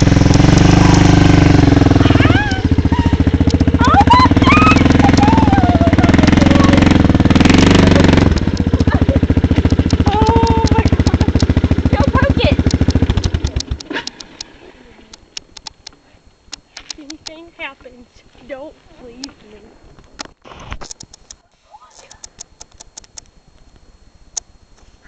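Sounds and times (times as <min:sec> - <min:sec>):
small engine running: 0:00.0 - 0:15.3
voices calling out: 0:00.2 - 0:15.3.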